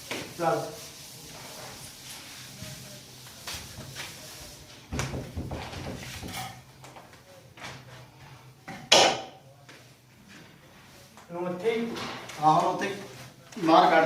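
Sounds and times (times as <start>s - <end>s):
wood knocking and clattering: 4.9s - 6.4s.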